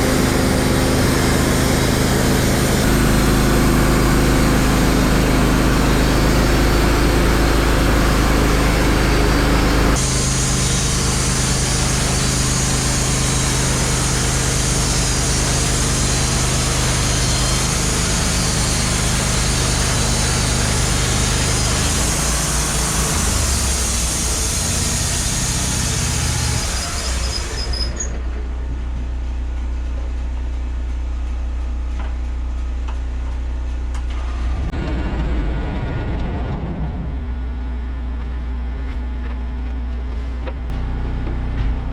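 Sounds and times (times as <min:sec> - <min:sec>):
saw blade hissing through wood: 0:00.0 - 0:28.1
sawmill engine running: 0:00.0 - 0:41.9.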